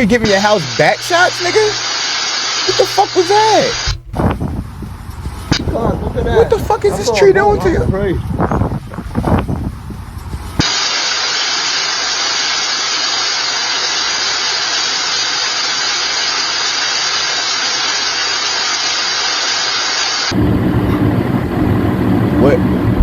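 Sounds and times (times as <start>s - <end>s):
heavy rain pouring: 9.8s - 23.0s.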